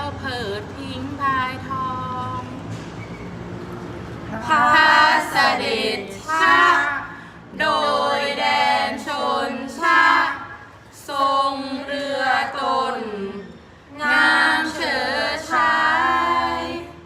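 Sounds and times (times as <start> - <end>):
person chanting unaccompanied: 4.3 - 17.0
breaths: 7.1 - 7.5.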